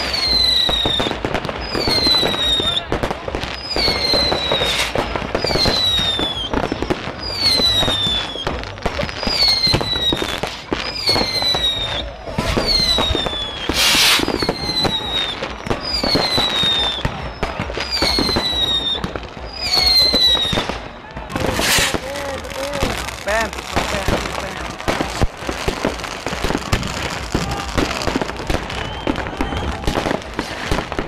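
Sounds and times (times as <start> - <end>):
firework bangs and crackles: 0.0 - 31.0
firework whistle falling in pitch: 3.6 - 8.6, 9.2 - 20.8, 26.4 - 31.0
short hissing burst: 13.8 - 14.3.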